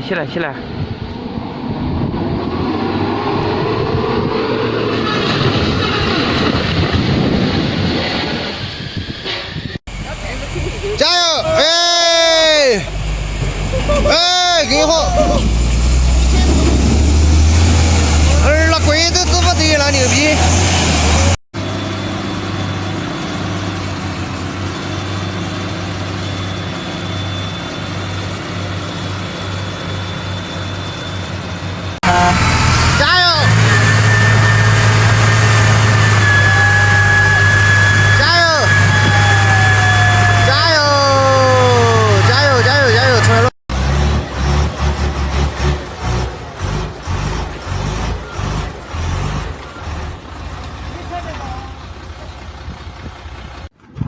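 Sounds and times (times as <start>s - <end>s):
heavy truck engine under load: 9.9s - 21.4s, 31.3s - 54.0s.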